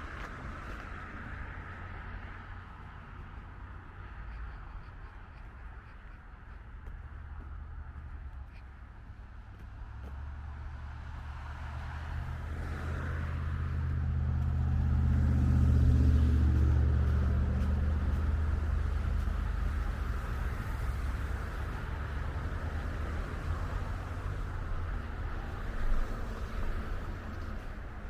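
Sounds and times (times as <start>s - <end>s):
motor vehicle passing by: 9.4s - 28.0s.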